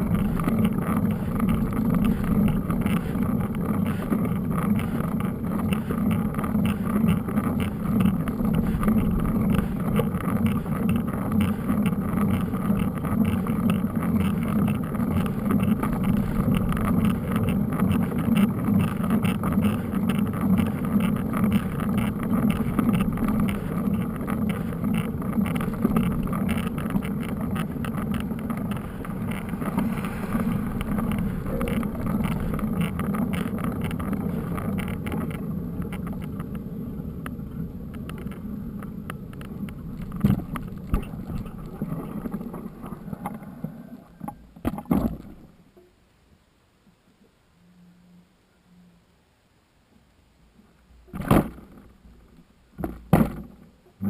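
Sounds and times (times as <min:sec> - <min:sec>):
wind buffeting microphone: 0:00.0 - 0:35.2
bike rattling over rough ground: 0:00.0 - 0:45.7, 0:51.1 - 0:54.0.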